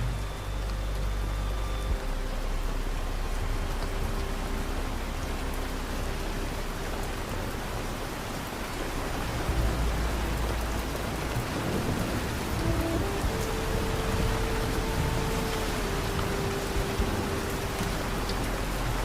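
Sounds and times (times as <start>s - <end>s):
distant thunder rumble: 0.0s - 19.0s
steady rain hissing: 0.0s - 19.0s.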